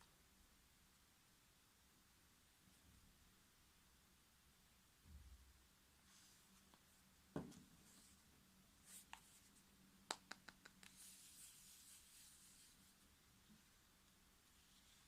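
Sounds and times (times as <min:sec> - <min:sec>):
soft knock: 0:07.3 - 0:07.7.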